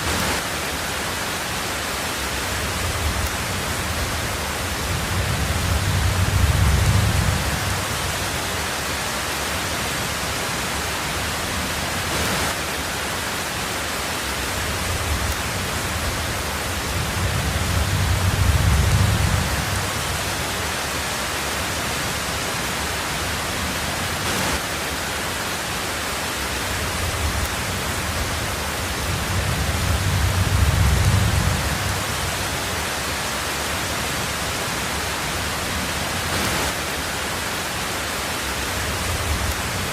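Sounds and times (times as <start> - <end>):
heavy rain on a tin roof: 0.0 - 39.9
low thunder rumble: 2.6 - 8.5, 14.7 - 20.6, 27.0 - 32.7.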